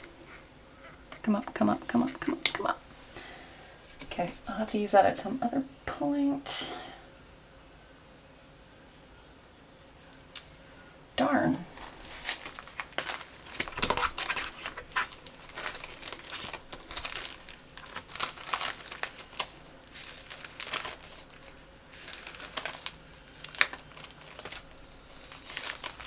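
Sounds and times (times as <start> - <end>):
paper crinkling and rustling: 11.7 - 26.0.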